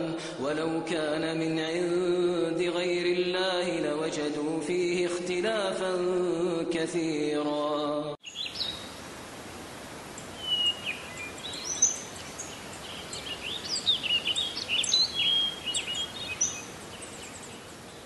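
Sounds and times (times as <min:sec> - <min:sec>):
birds chirping: 0:08.2 - 0:18.0
steady hiss: 0:08.2 - 0:18.0.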